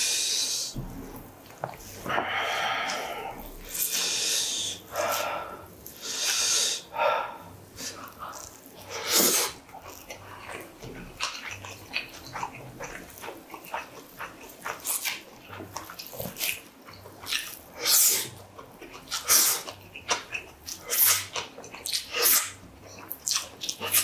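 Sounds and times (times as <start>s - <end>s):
man chewing with mouth clicks: 0.4s - 24.0s
sharp breaths through nose: 2.1s - 8.0s.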